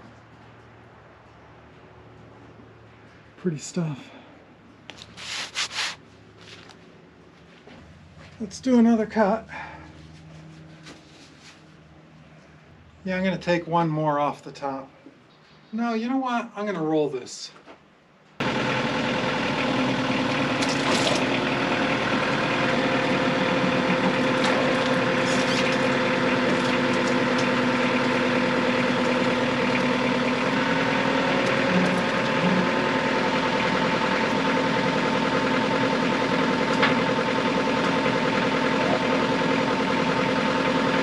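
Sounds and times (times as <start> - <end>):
sawmill engine running: 18.4 - 41.0.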